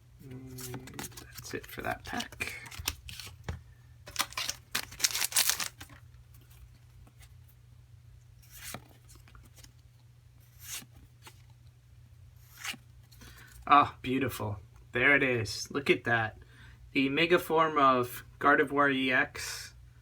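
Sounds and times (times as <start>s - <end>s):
cards clicking: 0.5s - 6.0s
foil pack crinkling: 0.6s - 6.1s.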